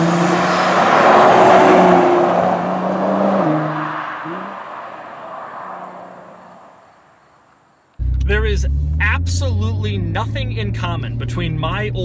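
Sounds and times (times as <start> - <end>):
car engine accelerating away: 0.0 - 4.7, 8.0 - 12.0.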